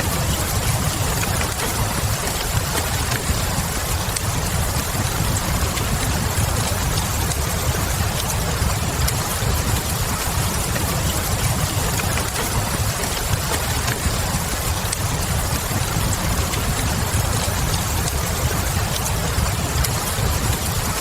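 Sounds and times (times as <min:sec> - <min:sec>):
steady rain: 0:00.0 - 0:21.0
wood fire crackles: 0:00.0 - 0:21.0.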